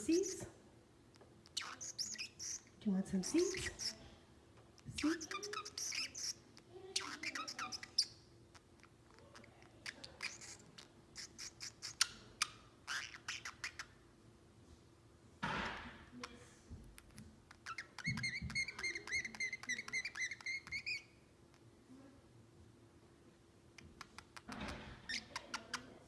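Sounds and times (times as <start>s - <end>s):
parrotlet chirping and clicking: 1.1s - 4.0s, 4.8s - 14.0s, 17.0s - 21.7s, 23.8s - 26.0s.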